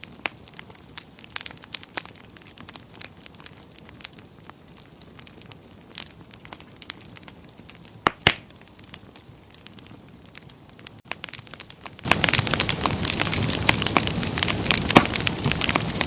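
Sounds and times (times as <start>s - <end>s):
loud fire pops: 0.0s - 16.0s
wood fire crackling: 0.0s - 16.0s.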